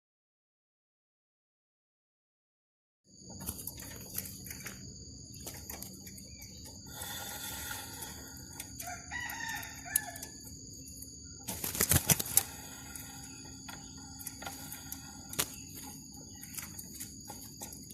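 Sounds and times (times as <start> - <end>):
high-pitched insect drone: 3.2 - 17.9
bird calling: 3.6 - 17.9.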